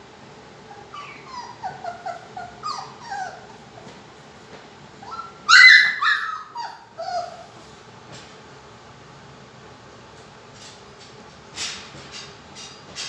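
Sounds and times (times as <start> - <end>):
puppy whimpering and whining: 0.7 - 3.9, 5.0 - 7.6.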